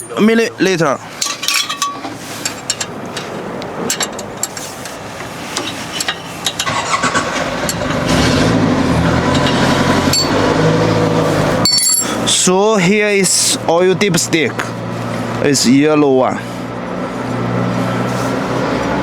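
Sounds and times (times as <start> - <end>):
background noise and clicks: 1.2 - 8.1
engine running: 2.0 - 19.0.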